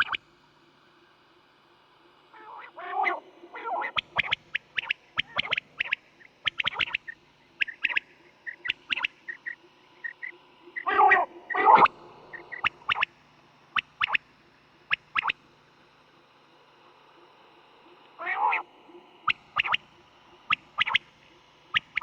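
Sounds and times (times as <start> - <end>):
quail calling: 2.4 - 13.1, 18.2 - 18.6, 19.3 - 19.8, 20.5 - 21.1.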